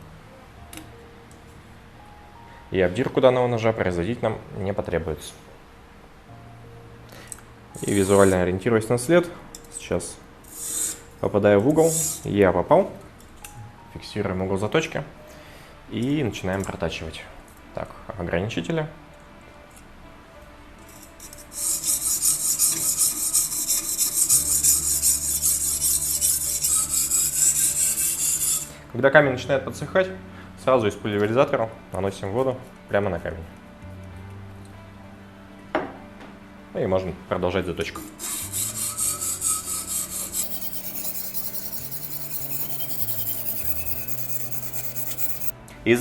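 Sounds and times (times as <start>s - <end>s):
stone rasping on knife blade: 21.6s - 28.7s, 38.8s - 45.5s
whetstone scraping knife blade: 39.2s - 45.5s.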